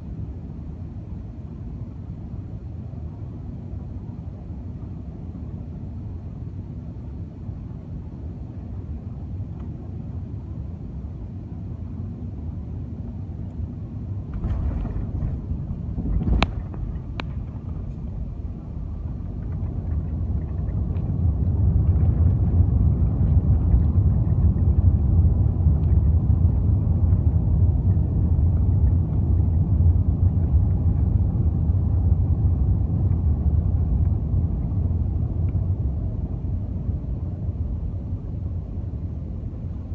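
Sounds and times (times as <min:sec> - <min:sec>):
airliner cabin rumble: 0:00.0 - 0:39.9
wheels touching down thud: 0:14.3 - 0:19.6.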